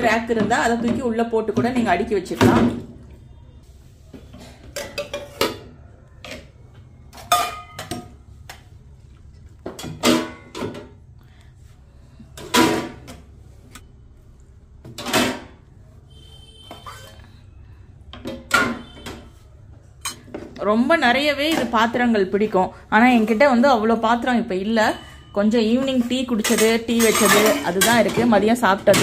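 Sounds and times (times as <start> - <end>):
dishes and utensils clattering: 4.2 - 8.3, 9.6 - 11.0, 12.3 - 13.3, 14.8 - 15.6, 16.7 - 17.3, 18.1 - 19.3, 20.0 - 20.6, 25.8 - 29.0.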